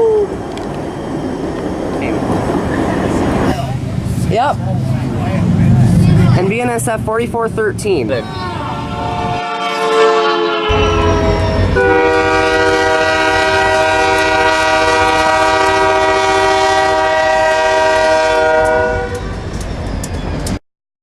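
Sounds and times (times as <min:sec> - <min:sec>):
low engine and wheel rumble: 0:00.0 - 0:09.2
locomotive air horn blast: 0:08.5 - 0:19.3.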